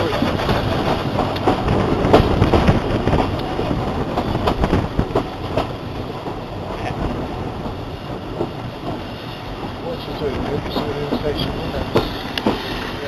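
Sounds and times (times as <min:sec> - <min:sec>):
steam train rumbling past: 0:00.0 - 0:13.0
train knocks and clanks: 0:00.0 - 0:13.0.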